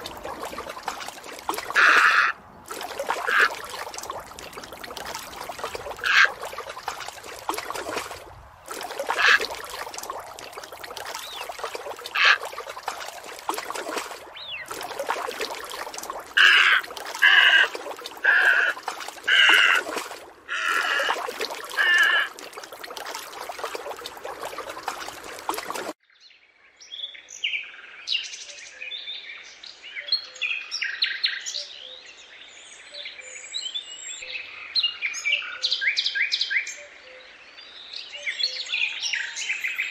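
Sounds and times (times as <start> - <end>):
water trickling and splashing: 0.0 - 26.0.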